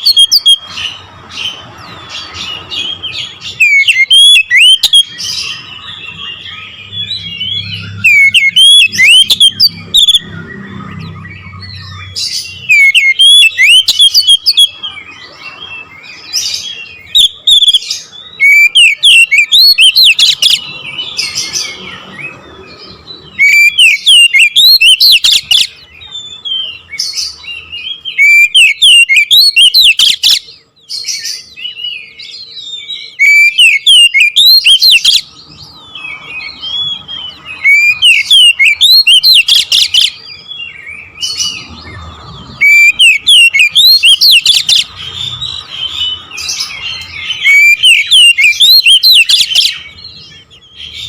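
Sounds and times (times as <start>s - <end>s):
bird singing rapid whistles: 0.0s - 51.0s.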